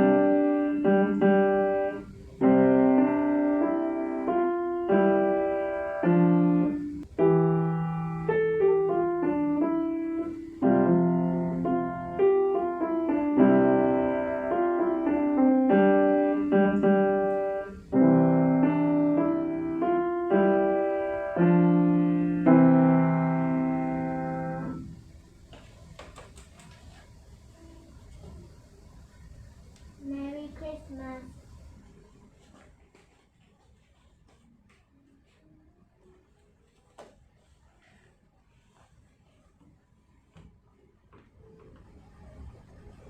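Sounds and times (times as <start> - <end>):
piano playing slow chords: 0.0 - 25.0.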